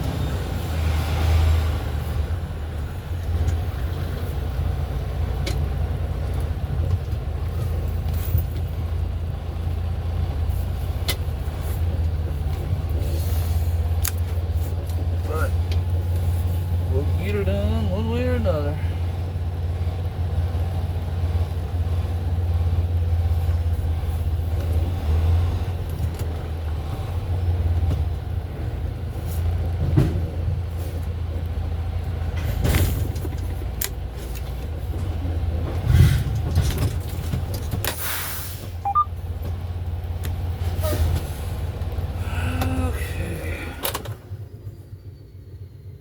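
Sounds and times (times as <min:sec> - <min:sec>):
truck engine rumbling: 0:00.0 - 0:46.0
short air hiss: 0:38.0 - 0:38.7.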